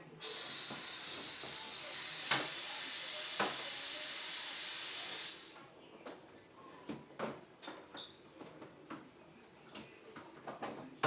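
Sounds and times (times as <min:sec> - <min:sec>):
loud steady hiss: 0:00.0 - 0:05.6.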